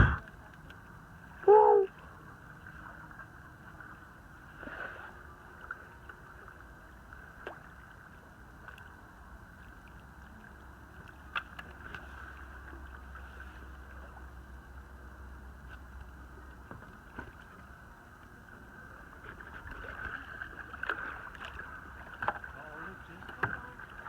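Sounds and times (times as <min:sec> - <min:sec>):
low rumble: 0:00.0 - 0:00.4.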